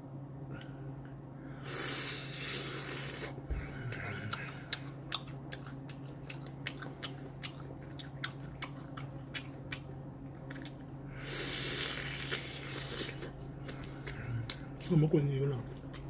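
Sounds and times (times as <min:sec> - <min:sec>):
low hum: 0:00.0 - 0:16.0
wet chewing mouth clicks: 0:03.9 - 0:10.9.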